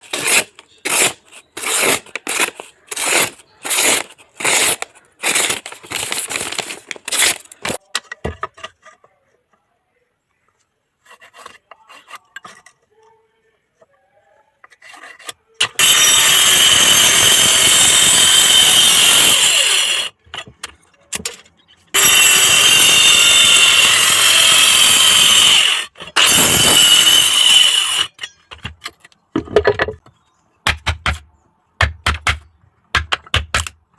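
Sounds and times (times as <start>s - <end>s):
file or saw rasping: 0.0s - 7.8s, 14.8s - 20.1s, 22.0s - 28.2s
grinder whining: 0.0s - 7.8s, 15.6s - 20.2s, 22.0s - 28.3s.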